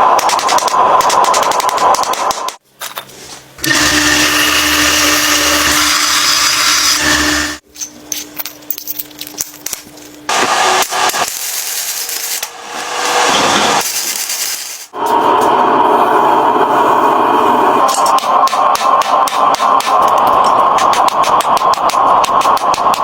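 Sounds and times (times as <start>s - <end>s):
power tool motor running: 3.6s - 7.6s.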